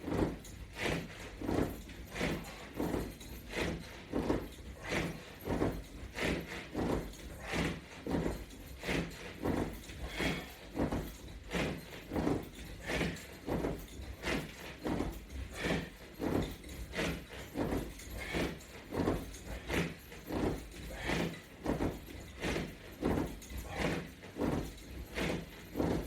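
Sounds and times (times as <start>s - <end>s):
person breathing hard: 10.0s - 10.9s, 15.5s - 16.0s, 18.1s - 20.0s, 20.8s - 21.5s.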